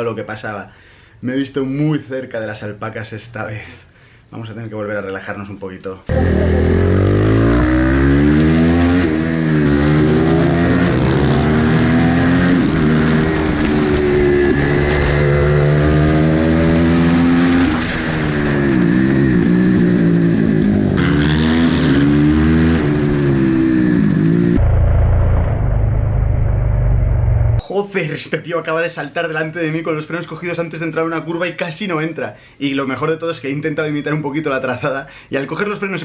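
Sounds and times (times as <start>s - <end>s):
motorcycle engine revving: 6.1s - 27.6s.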